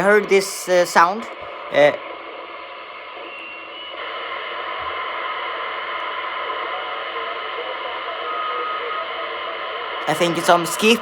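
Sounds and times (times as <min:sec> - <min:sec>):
faint steady radio tones: 0:00.0 - 0:11.0
radio static hiss: 0:00.0 - 0:11.0
short clear radio tone: 0:06.2 - 0:11.0.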